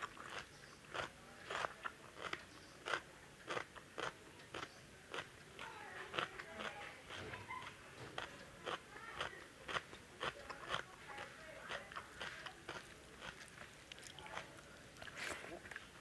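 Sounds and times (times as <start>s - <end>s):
wet chewing with mouth clicks: 0.0s - 16.0s.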